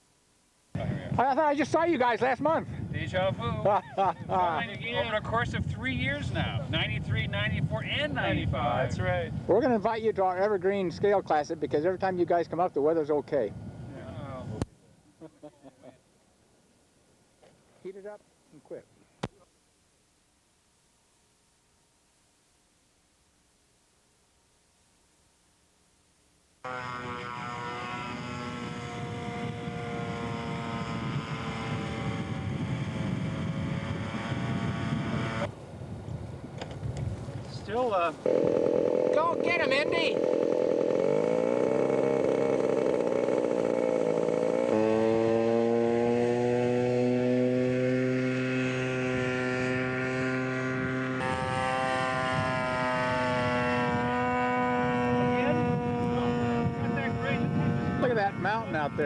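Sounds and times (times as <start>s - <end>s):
model airplane engine buzzing: 26.6s - 59.0s.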